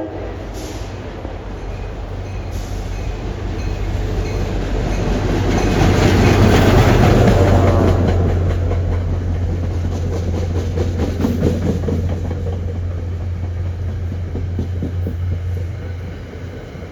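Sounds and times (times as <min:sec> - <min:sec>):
train wheels clacking over rail joints: 0:01.6 - 0:16.9.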